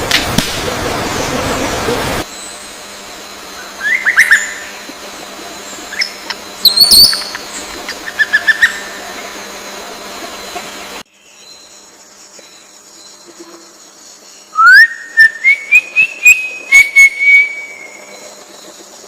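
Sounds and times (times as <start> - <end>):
faint steady hum: 0.0 - 19.0
bird chirps: 3.6 - 4.8, 5.7 - 9.1, 14.1 - 18.4.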